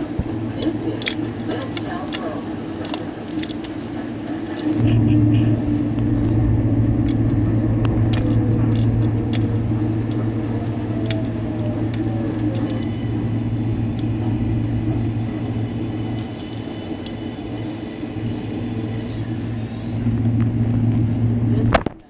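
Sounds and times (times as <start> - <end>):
subway car low hum: 0.0 - 22.0.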